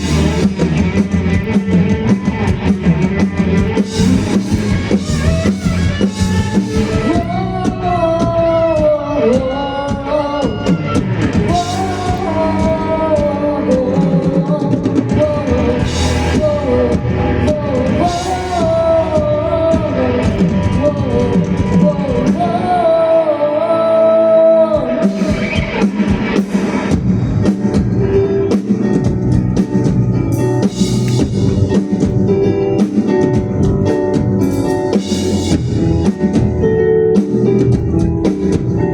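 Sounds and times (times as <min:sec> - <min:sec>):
rock band playing live: 0:00.0 - 0:38.9
person singing: 0:04.9 - 0:26.1.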